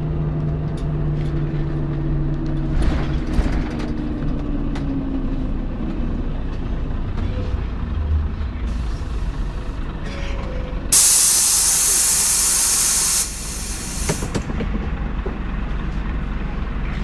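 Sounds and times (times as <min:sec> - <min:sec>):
bus engine idling: 0:00.0 - 0:17.0
compressed air hiss: 0:11.0 - 0:14.3.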